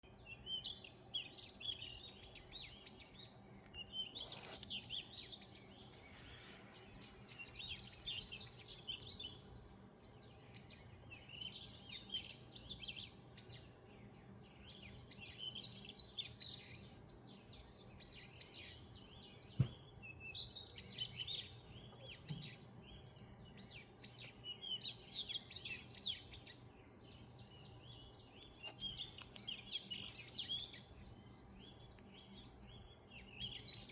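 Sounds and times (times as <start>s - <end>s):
songbird twittering: 0.0s - 33.9s
brief knock: 19.6s - 19.8s.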